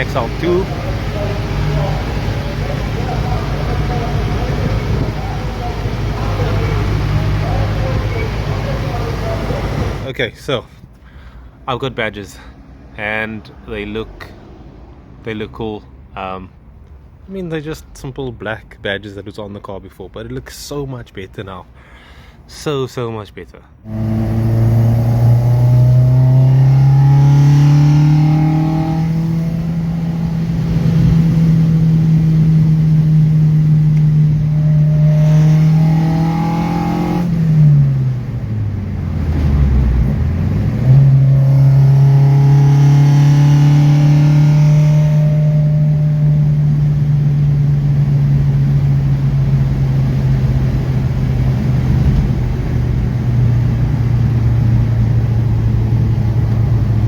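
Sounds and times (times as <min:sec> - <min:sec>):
car engine running: 0:00.0 - 0:10.1, 0:23.8 - 0:57.0.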